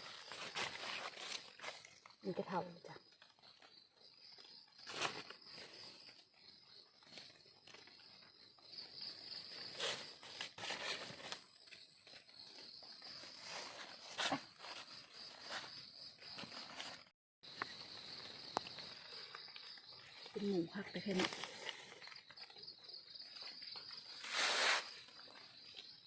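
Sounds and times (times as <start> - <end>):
footsteps rustling through undergrowth: 0.0 - 1.9.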